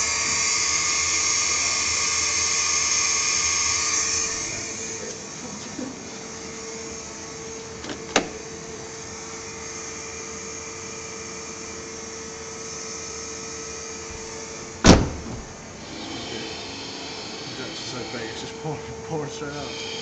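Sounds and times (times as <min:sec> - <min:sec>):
electric fuel pumps whining: 0:00.0 - 0:20.0.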